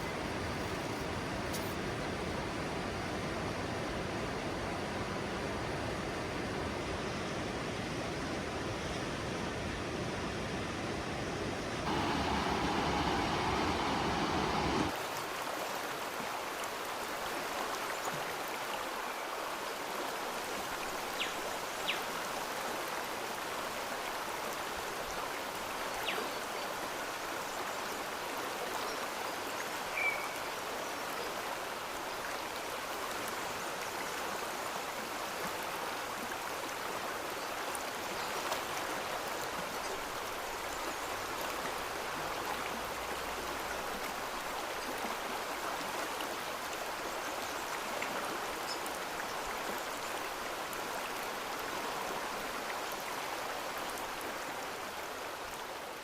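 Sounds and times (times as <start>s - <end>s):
flowing stream: 0.0s - 56.0s
deep rushing noise: 11.9s - 14.9s.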